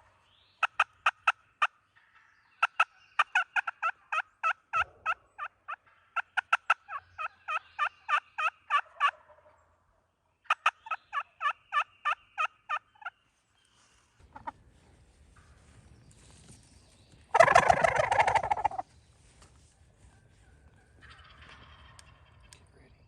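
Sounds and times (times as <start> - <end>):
turkey yelping: 2.6 - 9.5, 10.4 - 13.1, 14.3 - 14.5, 17.3 - 18.8, 20.2 - 22.4.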